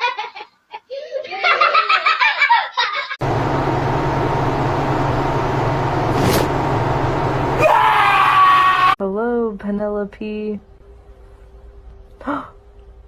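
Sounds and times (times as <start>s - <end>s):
low hum and hiss: 9.0s - 13.0s.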